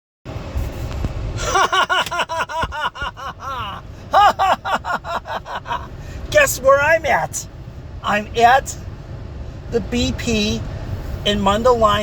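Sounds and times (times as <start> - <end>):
low vehicle rumble: 0.3 - 12.0
man laughing rapidly: 1.4 - 6.0.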